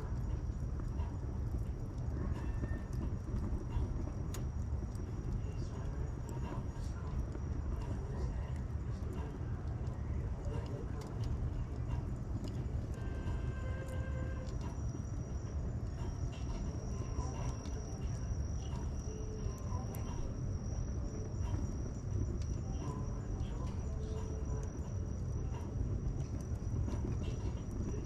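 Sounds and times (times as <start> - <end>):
bonfire crackling: 0.0 - 28.0
high insect trill: 13.0 - 28.0.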